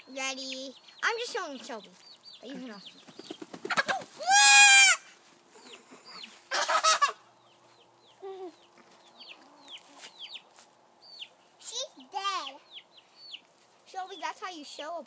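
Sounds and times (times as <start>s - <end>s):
chicken squawking: 3.5s - 7.5s.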